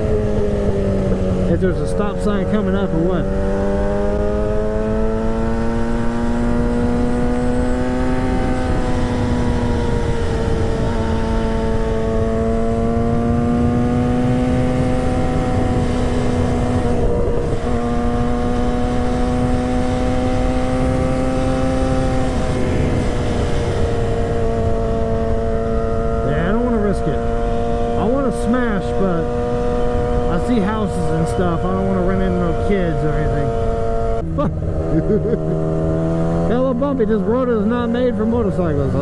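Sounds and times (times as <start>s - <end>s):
motorcycle engine running: 0.0s - 39.0s
wind rush: 6.1s - 36.5s.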